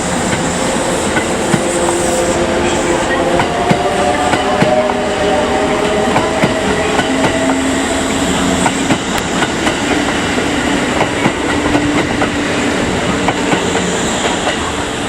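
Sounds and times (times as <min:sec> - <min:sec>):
train running noise: 0:00.0 - 0:15.0
train wheels clicking over rail joints: 0:03.3 - 0:14.9.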